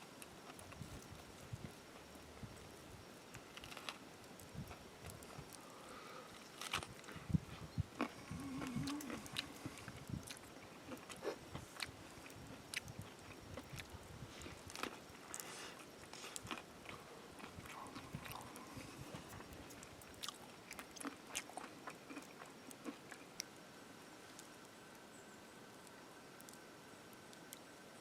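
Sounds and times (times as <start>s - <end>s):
person biting and chewing: 12.7s - 23.2s.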